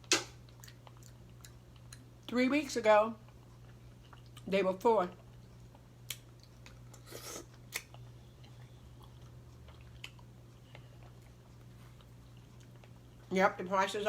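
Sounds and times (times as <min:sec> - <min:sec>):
person chewing food: 0:00.0 - 0:02.3, 0:03.2 - 0:04.5, 0:05.2 - 0:13.3
low steady hum: 0:00.0 - 0:14.0.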